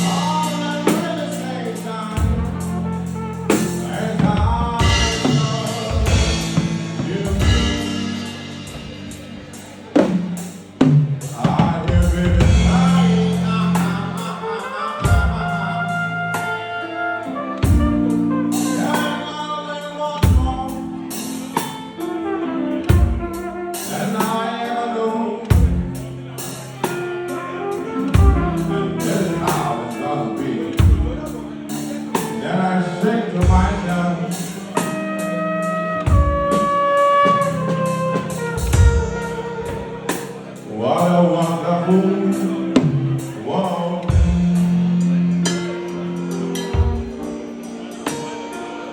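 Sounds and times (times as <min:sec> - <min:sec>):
flugelhorn melody: 0:00.0 - 0:48.9
drum beat: 0:02.0 - 0:14.4, 0:17.6 - 0:19.1, 0:28.0 - 0:30.0, 0:36.0 - 0:40.5, 0:46.6 - 0:47.4.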